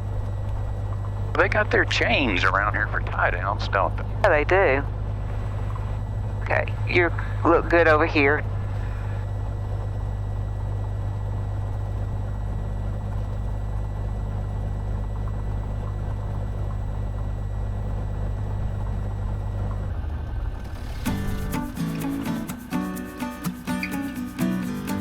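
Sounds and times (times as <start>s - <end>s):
piston engine idling: 18.6s - 25.0s
music: 21.0s - 25.0s.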